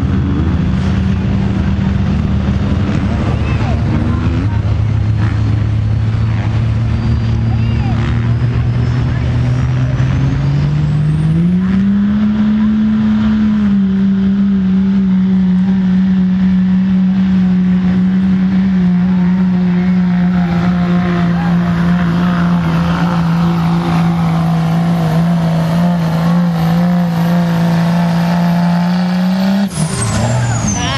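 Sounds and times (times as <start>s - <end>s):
truck engine at high revs: 0.0s - 30.9s.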